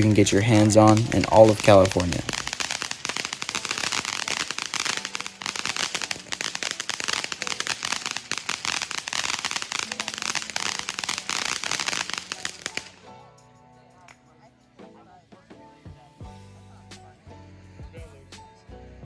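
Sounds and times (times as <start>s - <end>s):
fountain firework crackling: 0.0s - 13.2s
faint music: 0.0s - 19.0s.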